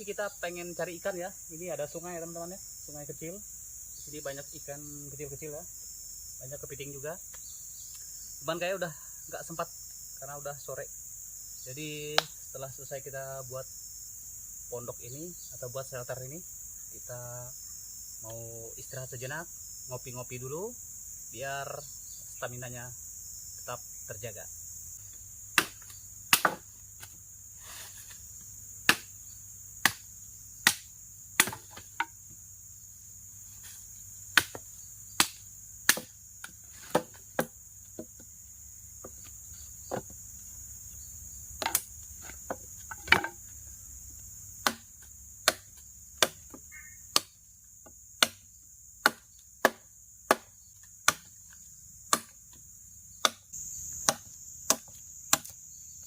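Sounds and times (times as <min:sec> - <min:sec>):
crickets and insects chirring: 0:00.0 - 0:56.0
sharp chopping strikes: 0:25.6 - 0:27.2, 0:28.8 - 0:29.1, 0:29.8 - 0:32.1, 0:34.3 - 0:37.5, 0:44.6 - 0:47.4, 0:48.2 - 0:48.4, 0:49.0 - 0:51.3, 0:52.1 - 0:52.4, 0:53.2 - 0:55.6.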